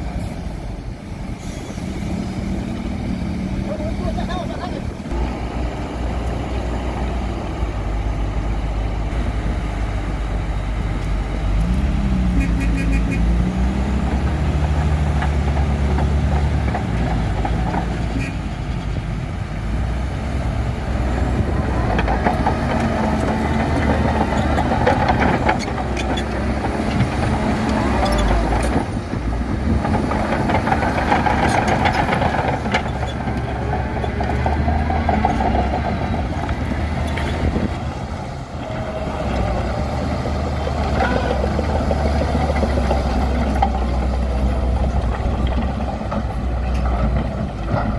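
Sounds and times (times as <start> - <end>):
bulldozer diesel engine running: 0.0 - 47.9
gravel scraping: 21.1 - 47.9.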